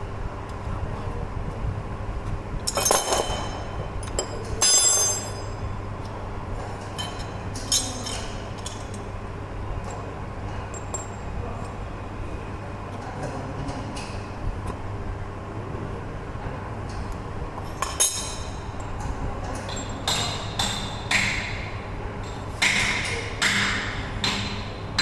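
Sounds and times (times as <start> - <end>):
steady low hum: 0.0 - 25.0
metal tools clinking: 2.7 - 5.6.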